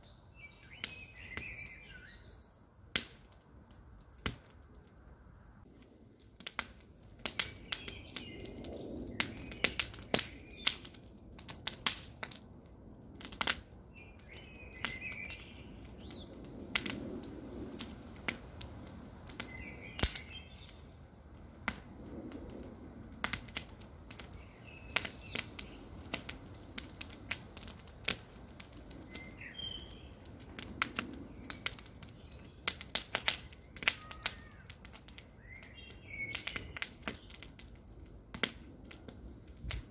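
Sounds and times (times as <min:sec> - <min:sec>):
faint bird chirping: 0:00.0 - 0:02.8, 0:29.0 - 0:30.3
wood crackling and popping: 0:00.0 - 0:39.9
rush of flame: 0:05.6 - 0:39.9.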